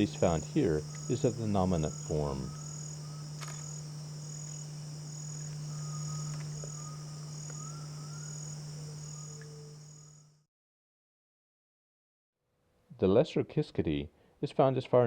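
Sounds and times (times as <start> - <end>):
faint short bird notes: 0.0 - 9.9
low steady hum: 0.0 - 10.3
insect chorus: 0.0 - 10.5.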